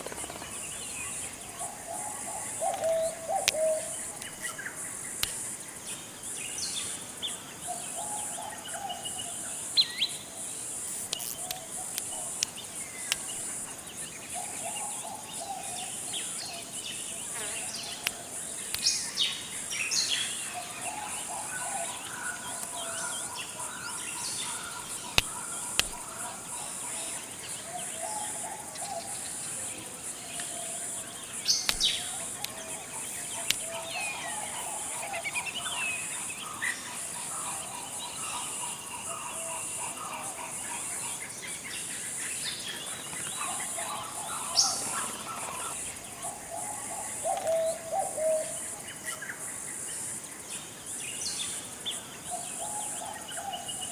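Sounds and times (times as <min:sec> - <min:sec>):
birds calling and chirping: 0:00.0 - 0:49.6
steady high-pitched hiss: 0:00.0 - 0:53.9
sharp clicks: 0:02.7 - 0:05.5, 0:10.9 - 0:13.5, 0:24.4 - 0:26.2, 0:31.5 - 0:33.8.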